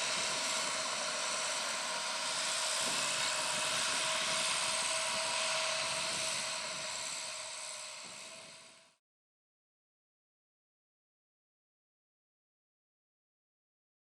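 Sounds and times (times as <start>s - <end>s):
steady mechanical whine: 0.0s - 9.0s
tractor and baler running: 0.0s - 9.0s.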